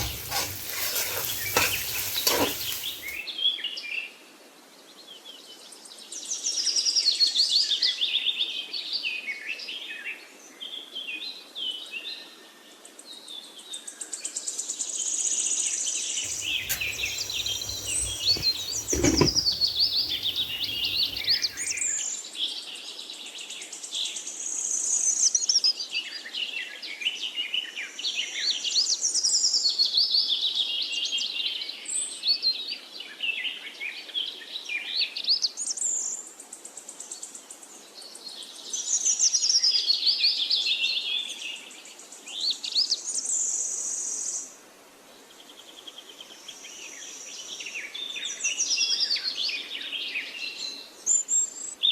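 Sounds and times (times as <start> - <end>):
birds chirping and singing: 0.0 - 3.2, 16.3 - 21.8.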